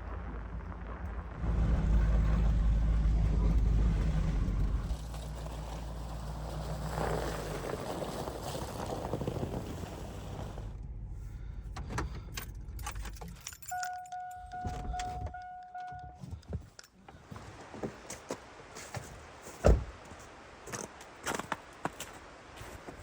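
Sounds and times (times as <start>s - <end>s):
pickup truck engine running: 0.3s - 15.2s.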